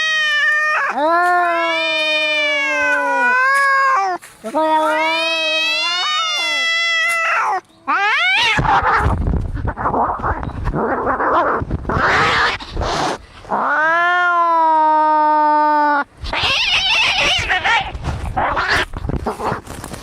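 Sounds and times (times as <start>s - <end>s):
cat yowling: 0.0s - 9.1s, 13.6s - 18.9s
cats hissing and spitting: 8.3s - 13.7s, 16.2s - 20.0s.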